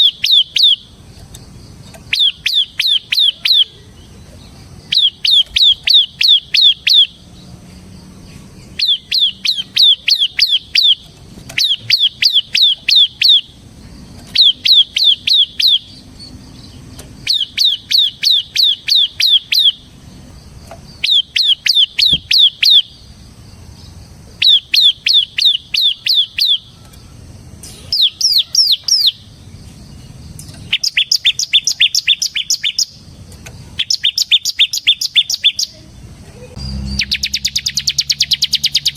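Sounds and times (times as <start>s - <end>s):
bird singing whistled phrases: 0.0s - 0.9s, 2.0s - 4.2s, 4.8s - 7.2s, 8.7s - 13.6s, 14.3s - 19.9s, 21.0s - 23.0s, 24.4s - 27.0s, 27.8s - 29.3s, 30.6s - 33.0s, 33.8s - 35.8s, 36.5s - 38.9s.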